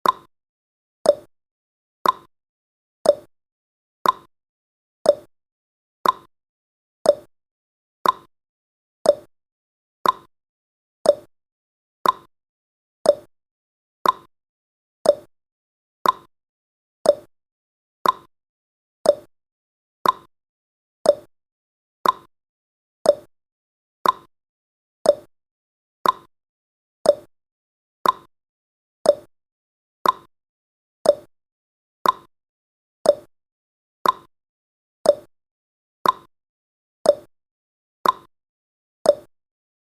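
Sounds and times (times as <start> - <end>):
timer ticking: 0.0 - 0.3, 1.1 - 1.3, 2.0 - 2.3, 3.0 - 3.3, 4.0 - 4.3, 5.1 - 5.3, 6.0 - 6.3, 7.1 - 7.3, 8.0 - 8.3, 9.0 - 9.3, 10.0 - 10.3, 11.0 - 11.3, 12.0 - 12.3, 13.0 - 13.3, 14.0 - 14.3, 15.0 - 15.3, 16.0 - 16.3, 17.0 - 17.3, 18.0 - 18.3, 19.0 - 19.3, 20.0 - 20.3, 21.0 - 21.3, 22.0 - 22.3, 23.0 - 23.3, 24.0 - 24.3, 25.0 - 25.3, 26.0 - 26.3, 27.0 - 27.3, 28.0 - 28.3, 29.0 - 29.3, 30.0 - 30.3, 31.0 - 31.3, 32.0 - 32.3, 33.0 - 33.3, 34.0 - 34.3, 35.0 - 35.3, 36.0 - 36.3, 37.1 - 37.3, 38.0 - 38.3, 39.1 - 39.3.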